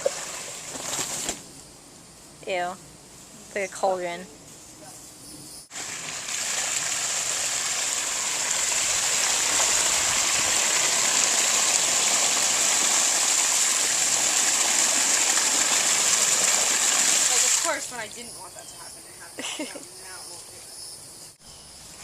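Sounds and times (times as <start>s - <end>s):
water gushing: 0.0s - 1.3s, 5.7s - 18.2s.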